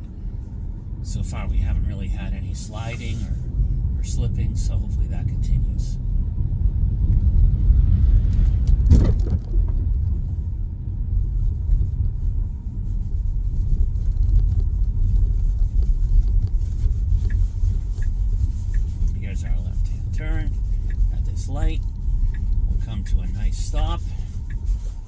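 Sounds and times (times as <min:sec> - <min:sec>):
road and tyre noise rumble: 0:00.0 - 0:25.0
brief thump: 0:08.7 - 0:09.8.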